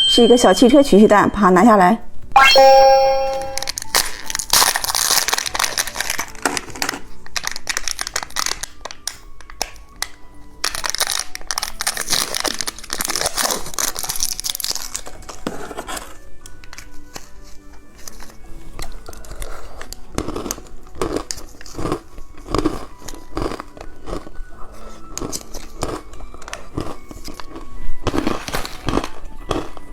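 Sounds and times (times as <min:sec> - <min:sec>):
plastic wrapper crinkling: 0:03.7 - 0:15.4.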